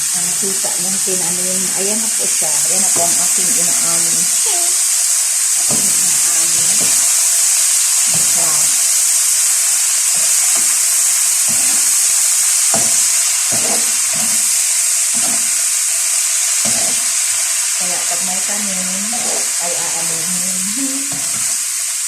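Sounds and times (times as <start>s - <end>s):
food sizzling in a pan: 0.0s - 22.0s
stirring knocks: 5.5s - 21.6s.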